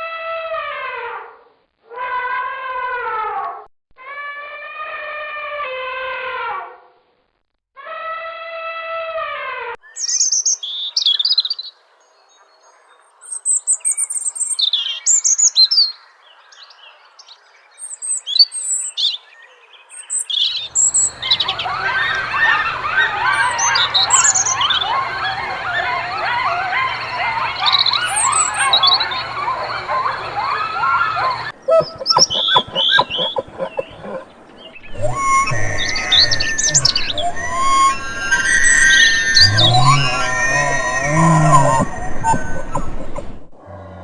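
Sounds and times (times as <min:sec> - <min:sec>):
birds chirping: 0:09.8 - 0:43.6.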